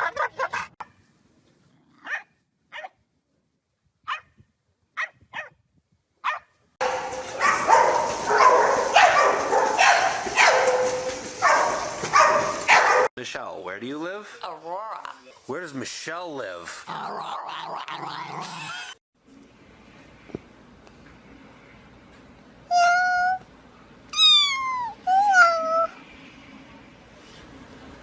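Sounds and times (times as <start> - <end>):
dog barking: 2.0 - 2.9, 4.1 - 4.3, 5.0 - 5.5, 6.2 - 13.1.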